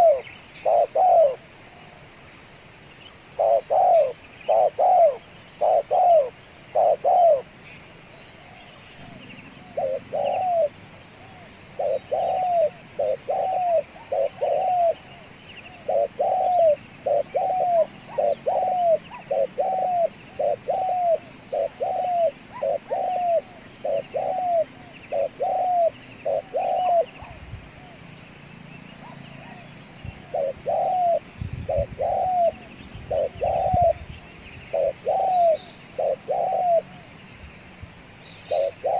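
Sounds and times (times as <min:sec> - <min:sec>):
dove cooing: 0:00.0 - 0:01.9, 0:03.3 - 0:07.5, 0:08.4 - 0:28.0, 0:29.0 - 0:37.1, 0:38.5 - 0:38.9
high-pitched hiss: 0:29.7 - 0:38.9.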